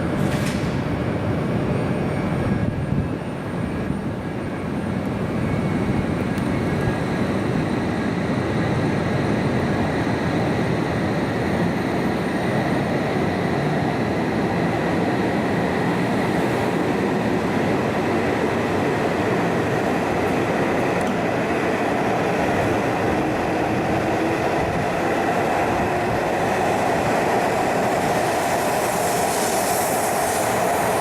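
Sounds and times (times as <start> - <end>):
train rumbling on the line: 0.0 - 31.0.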